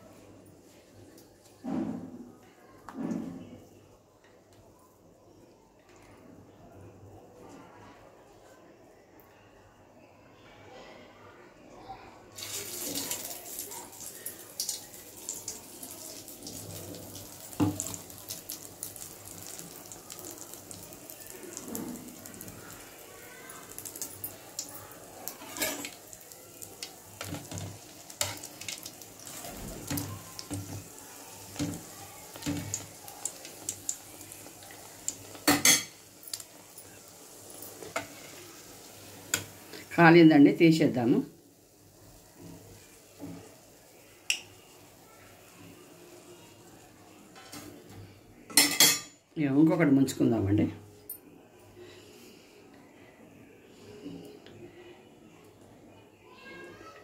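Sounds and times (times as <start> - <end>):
bread sizzling in hot oil: 12.4 - 47.1.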